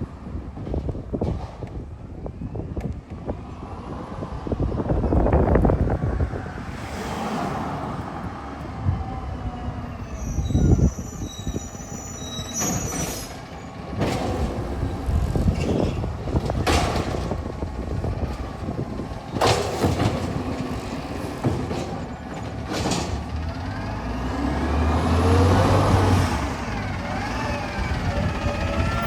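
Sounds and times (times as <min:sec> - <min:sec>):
garbage truck running: 0:04.7 - 0:29.0
high-pitched brake squeal: 0:09.8 - 0:13.8.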